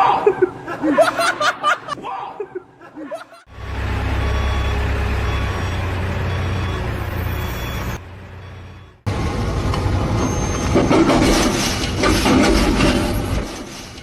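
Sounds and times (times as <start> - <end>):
laughter: 0.0 - 3.5
vehicle engine rumbling: 3.4 - 14.0.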